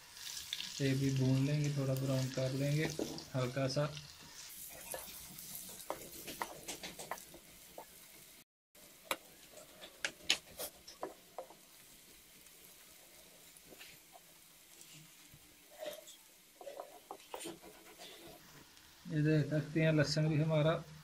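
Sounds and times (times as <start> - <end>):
onions sizzling in oil: 0.0 - 21.0
wooden spatula scraping a pot: 4.4 - 8.2, 9.4 - 11.7, 13.0 - 18.6.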